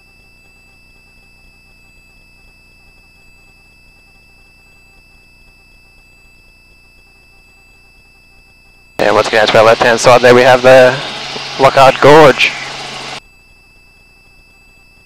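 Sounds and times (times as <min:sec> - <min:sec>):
high-pitched whine: 0:00.0 - 0:15.0
intercom hum and hiss: 0:09.0 - 0:13.2.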